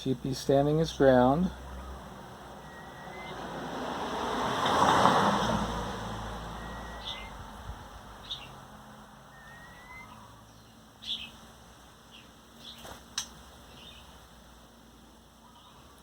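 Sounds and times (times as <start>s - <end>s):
bird chirping: 0.8s - 3.7s, 6.4s - 11.4s, 12.1s - 12.9s, 13.7s - 14.2s, 15.4s - 16.0s
thin rising whistles: 1.7s - 3.8s, 6.2s - 7.5s, 9.3s - 10.4s.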